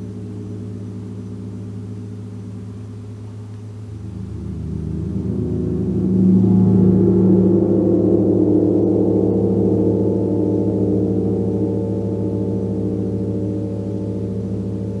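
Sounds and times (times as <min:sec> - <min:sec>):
gong ringing: 0:03.8 - 0:15.0.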